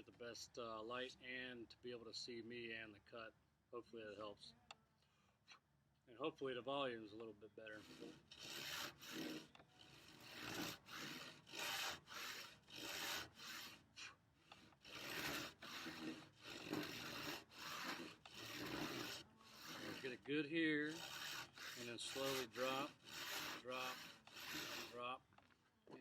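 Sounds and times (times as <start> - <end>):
hand saw cutting wood: 7.6 - 25.1.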